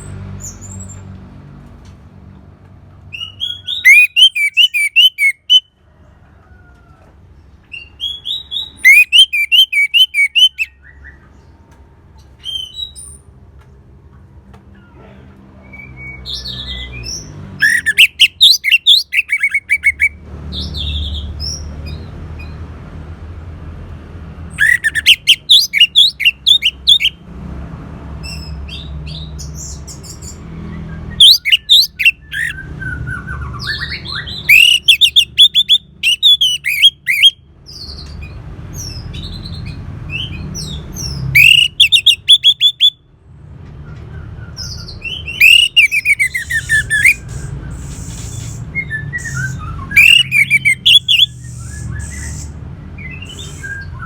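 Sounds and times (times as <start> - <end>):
thrush singing: 41.3 - 42.9, 45.2 - 53.9.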